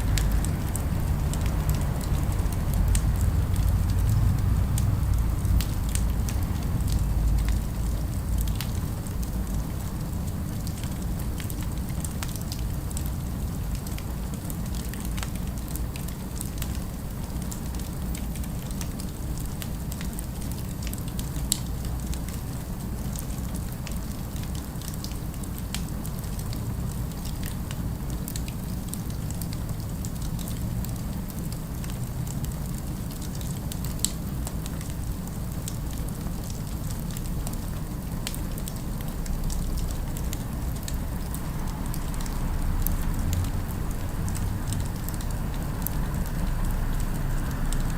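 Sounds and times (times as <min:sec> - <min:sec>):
fireplace crackling: 0:00.0 - 0:10.5
low fire rumble: 0:00.0 - 0:47.9.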